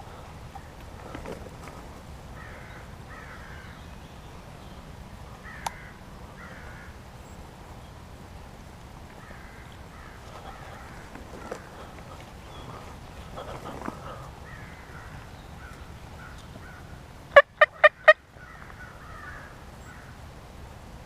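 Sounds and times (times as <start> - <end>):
steady low rumble: 0.0 - 21.0
crows cawing: 2.4 - 3.8, 5.3 - 7.0, 9.2 - 20.2.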